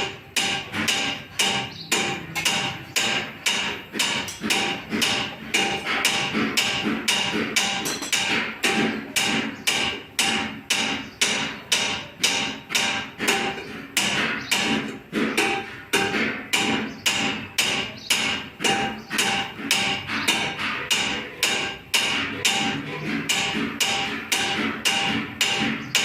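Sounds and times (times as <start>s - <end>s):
hammer striking copper: 0.0s - 26.0s.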